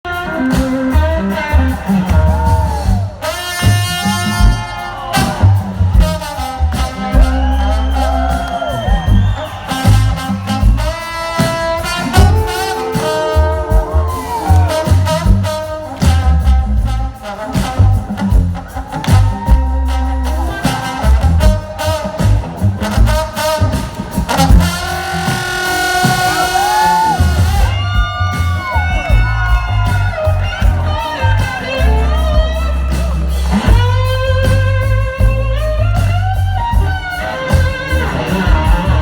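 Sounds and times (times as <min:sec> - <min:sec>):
band playing: 0:00.0 - 0:39.0
person singing: 0:12.2 - 0:14.9.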